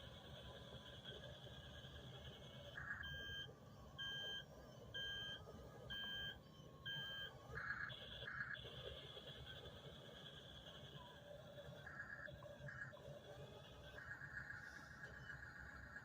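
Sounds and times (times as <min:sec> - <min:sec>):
faint steady hum: 0:00.0 - 0:16.0
toy electronic beeps: 0:01.4 - 0:10.8.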